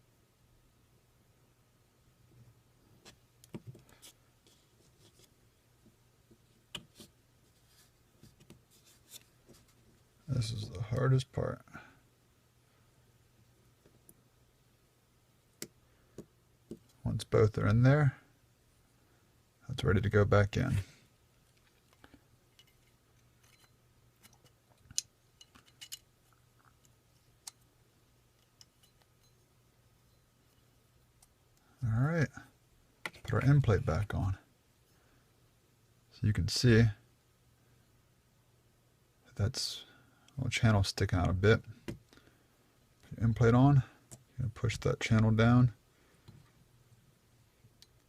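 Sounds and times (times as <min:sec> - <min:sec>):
small metal parts clicking: 0:21.9 - 0:26.1.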